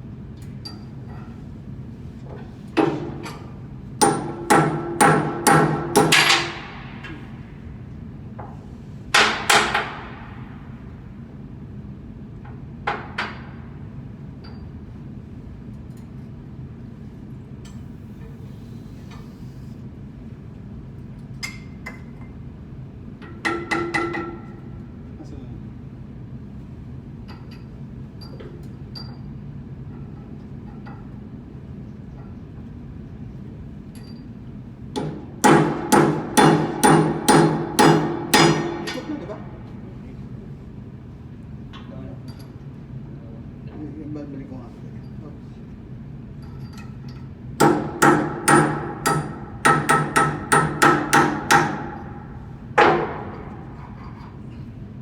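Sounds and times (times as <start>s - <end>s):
steady low hum: 0.0s - 55.0s
hammer striking metal: 4.0s - 7.2s, 35.0s - 39.1s, 47.6s - 52.2s.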